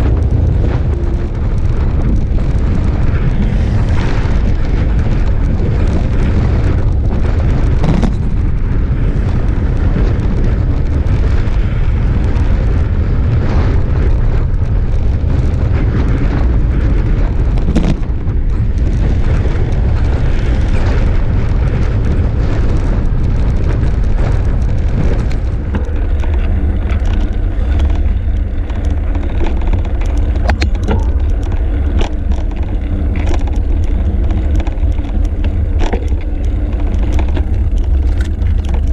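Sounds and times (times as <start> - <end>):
road and traffic noise: 0.0 - 38.9
vehicle engine hum: 0.0 - 38.9
wind buffeting microphone: 0.0 - 38.9
clicks and rattles: 14.6 - 38.9.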